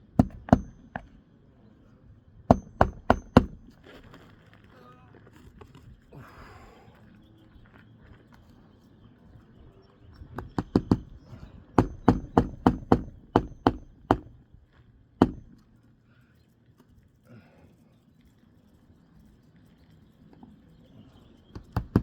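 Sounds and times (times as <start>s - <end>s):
hammer striking nails: 0.1s - 1.1s, 2.5s - 3.7s, 10.4s - 11.2s, 11.8s - 14.4s, 15.2s - 15.6s, 21.6s - 22.0s.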